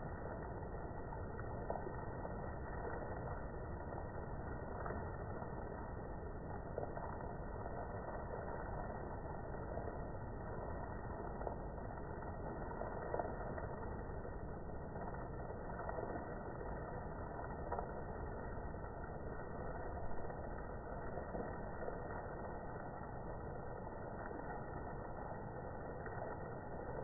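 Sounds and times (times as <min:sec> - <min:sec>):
steady rain of large drops: 0:00.0 - 0:27.0.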